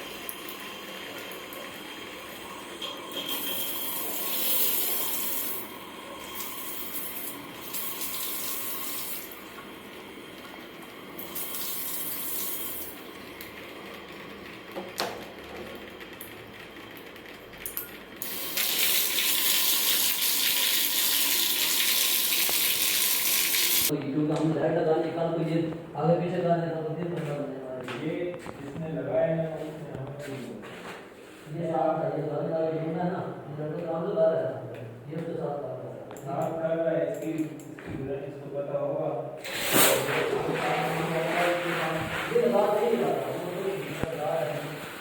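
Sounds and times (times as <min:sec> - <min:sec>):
tap water running: 0:00.0 - 0:15.2, 0:17.6 - 0:23.9.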